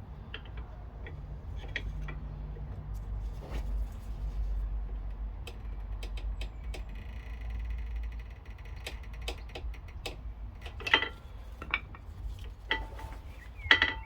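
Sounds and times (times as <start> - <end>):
metallic clicks of brake parts: 0.1 - 3.2, 4.9 - 14.0.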